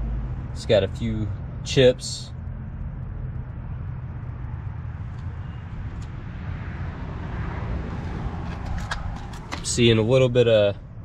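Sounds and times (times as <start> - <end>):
traffic rumble: 0.0 - 11.0
vehicle passing: 2.4 - 10.2.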